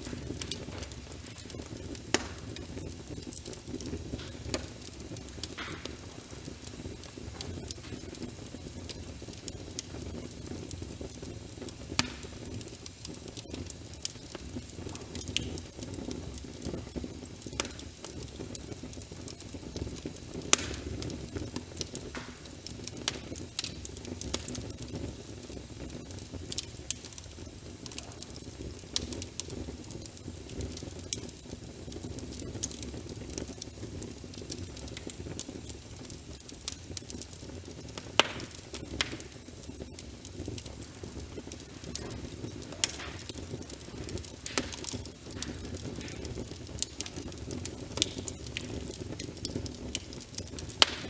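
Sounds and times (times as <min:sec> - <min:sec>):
wood fire crackling and popping: 0:00.0 - 0:51.0
rain: 0:36.0 - 0:51.0.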